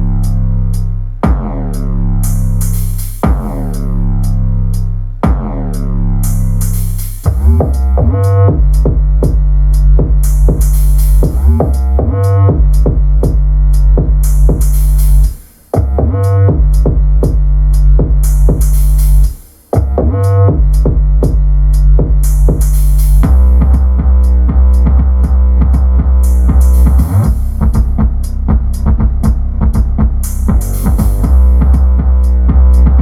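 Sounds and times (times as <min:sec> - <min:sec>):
electronic music with heavy bass: 0:00.0 - 0:33.0
ticking hi-hat beat: 0:00.0 - 0:33.0.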